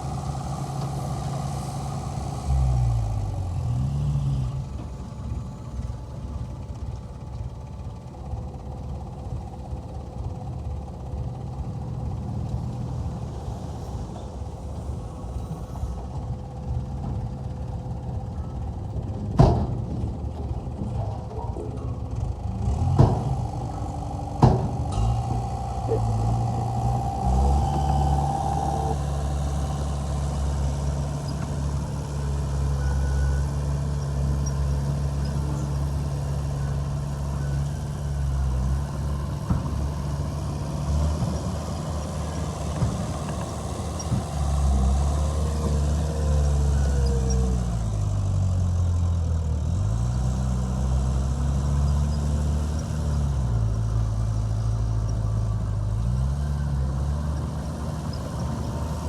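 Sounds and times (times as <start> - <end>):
heavy diesel engine rumbling: 0.0 - 59.0
high whine: 22.7 - 33.0
sharp knocks: 22.8 - 29.9.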